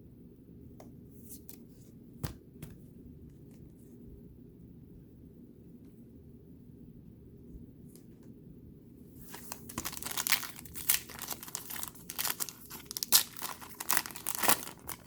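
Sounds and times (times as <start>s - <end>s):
plastic wrapper tearing and crinkling: 9.3s - 15.0s.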